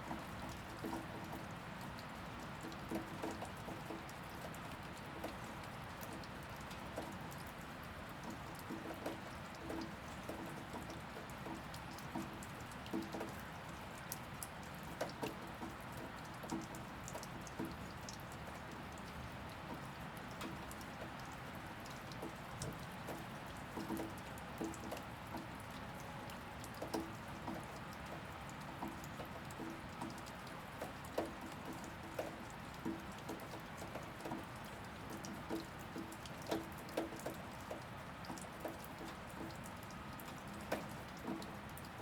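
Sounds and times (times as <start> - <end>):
steady rainfall: 0.0 - 42.0
heavy drips plunking: 14.7 - 42.0.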